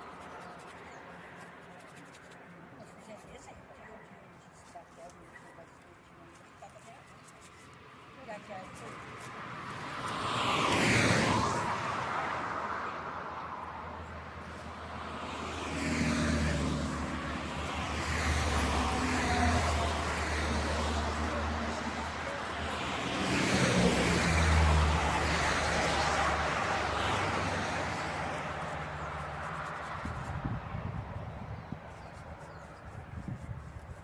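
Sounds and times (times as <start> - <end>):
motor vehicles passing: 8.1 - 34.0.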